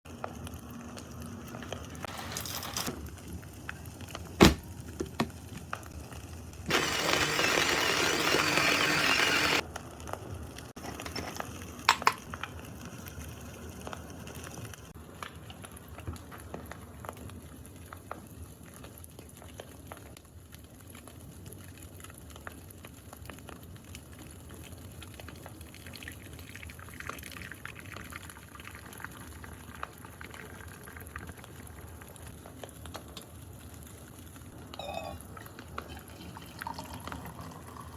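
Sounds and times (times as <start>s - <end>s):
liquid pouring: 6.7s - 9.6s, 25.6s - 32.2s, 34.7s - 37.9s.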